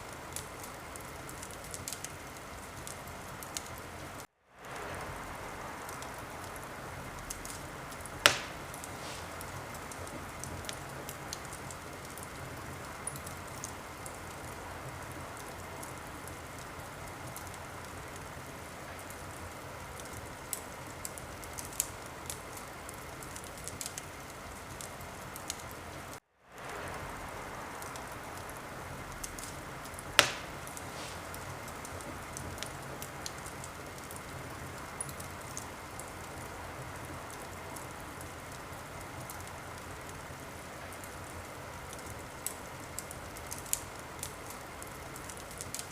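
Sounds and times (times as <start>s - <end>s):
wood fire crackling: 0.0s - 45.9s
loud fire pop: 8.2s - 10.1s, 30.1s - 32.7s.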